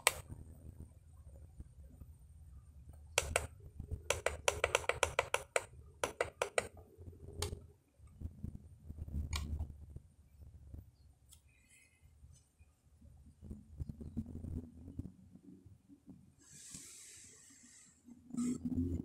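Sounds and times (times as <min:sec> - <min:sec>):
steady low hum: 0:00.0 - 0:19.0
control buttons clicking: 0:03.1 - 0:03.5, 0:04.1 - 0:06.8.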